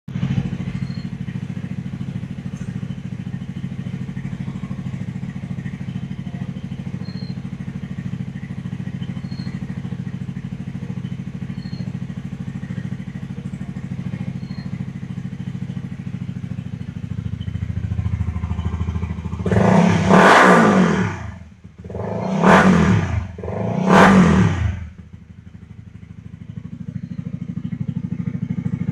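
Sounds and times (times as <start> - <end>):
motorcycle engine idling and revving: 0.0 - 28.9.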